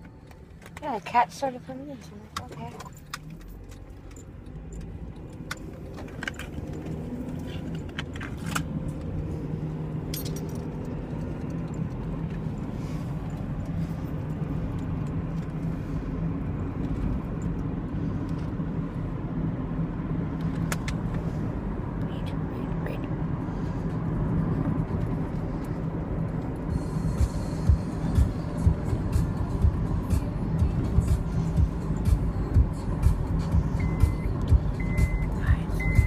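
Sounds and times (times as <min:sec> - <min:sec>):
car engine and road noise: 0:00.0 - 0:36.0.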